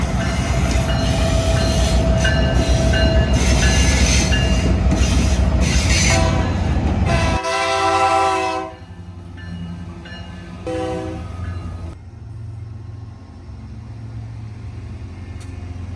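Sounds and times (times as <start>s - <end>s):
freight train rumbling: 0.0s - 15.9s
multi-chime train air horn: 5.8s - 8.9s, 10.6s - 11.6s.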